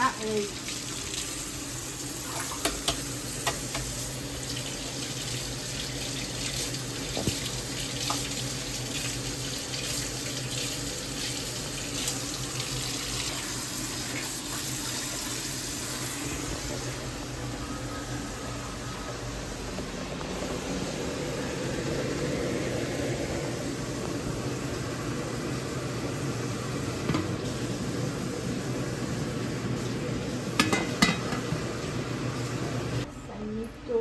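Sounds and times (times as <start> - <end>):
tap running into sink: 2.4 - 3.9, 6.5 - 8.4.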